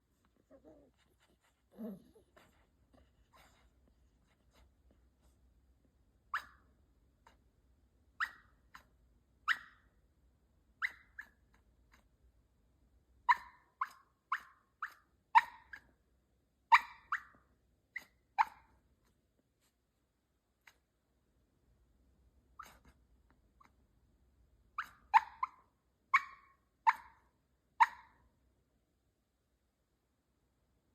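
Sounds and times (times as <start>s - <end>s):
puppy yipping and whimpering: 0.2s - 4.7s, 6.3s - 7.4s, 8.2s - 8.9s, 9.5s - 9.9s, 10.8s - 12.1s, 13.3s - 16.0s, 16.7s - 18.8s, 22.6s - 23.8s, 24.7s - 28.2s.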